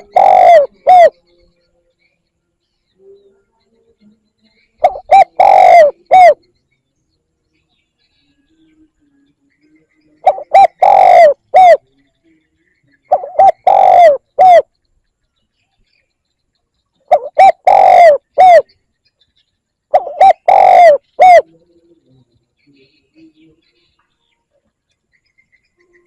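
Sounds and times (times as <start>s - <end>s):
dove cooing: 0.0s - 1.2s, 4.8s - 6.4s, 10.2s - 11.8s, 13.1s - 14.7s, 17.1s - 18.7s, 19.9s - 21.6s.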